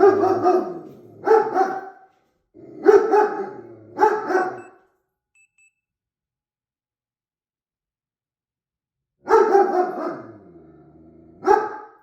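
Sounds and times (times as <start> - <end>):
puppy barking: 0.0 - 2.1, 2.8 - 4.7, 9.2 - 10.3, 11.4 - 12.0.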